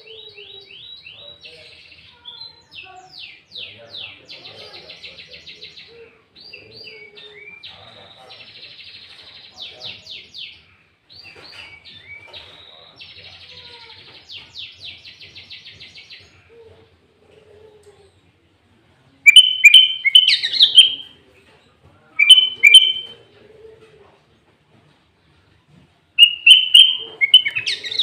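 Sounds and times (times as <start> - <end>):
bulbul singing: 19.3 - 21.2, 22.2 - 23.2, 26.2 - 28.0.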